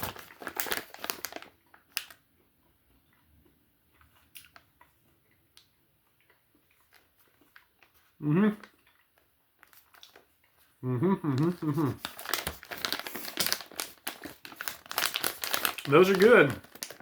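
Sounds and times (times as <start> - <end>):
plastic snack pouch crinkling: 0.0 - 2.2, 6.3 - 10.7, 11.3 - 17.0.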